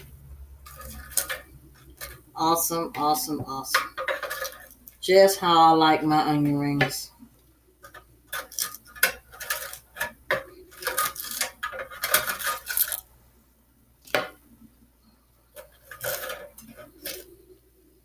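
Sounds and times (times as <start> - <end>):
dishes and utensils clattering: 0.0 - 2.3, 3.5 - 4.8, 7.8 - 13.1, 15.6 - 17.4.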